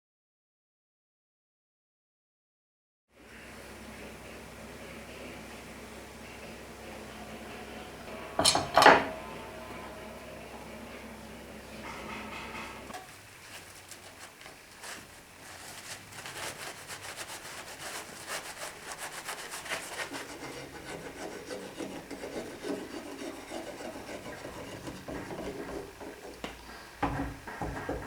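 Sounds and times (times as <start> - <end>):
soft rubbing on wood: 11.8 - 27.0
tool scraping wood: 14.0 - 26.9.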